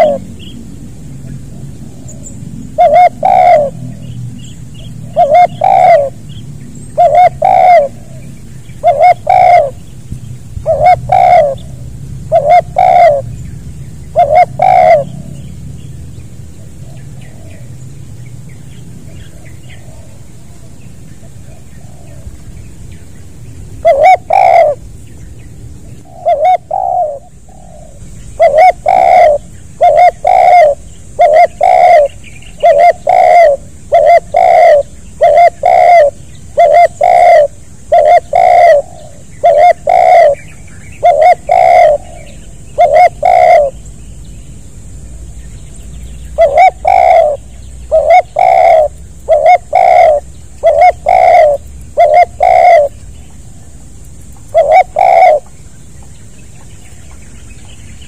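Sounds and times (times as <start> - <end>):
dove cooing: 0.0 - 0.6, 1.2 - 9.9, 10.6 - 13.3, 14.1 - 15.5, 19.0 - 22.5, 23.8 - 24.9, 25.9 - 43.8, 46.3 - 53.0, 54.4 - 55.6.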